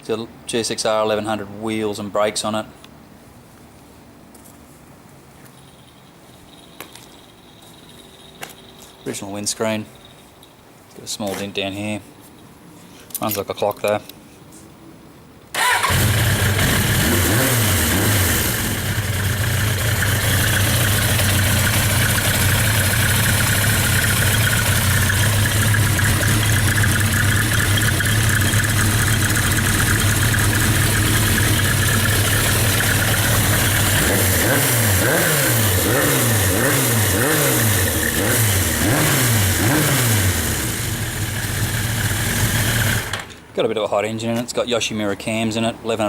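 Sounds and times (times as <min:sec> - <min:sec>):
engine revving: 0:15.6 - 0:43.2
motorcycle engine running: 0:15.8 - 0:43.2.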